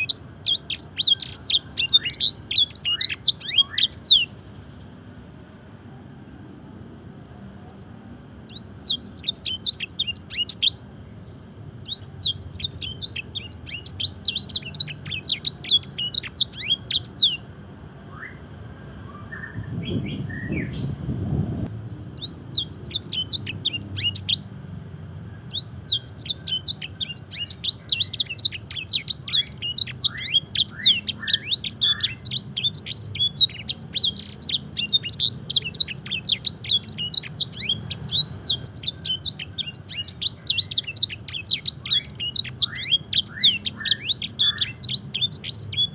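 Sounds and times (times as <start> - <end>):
canary singing trills: 0.0 - 5.1, 8.4 - 21.0, 21.9 - 24.6, 25.2 - 45.9
soft low rumble: 18.8 - 22.4.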